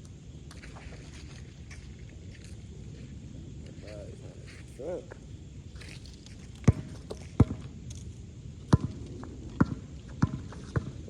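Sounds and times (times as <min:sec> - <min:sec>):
basketball bouncing on hard court: 0:06.7 - 0:07.6, 0:08.7 - 0:09.0, 0:09.6 - 0:11.0.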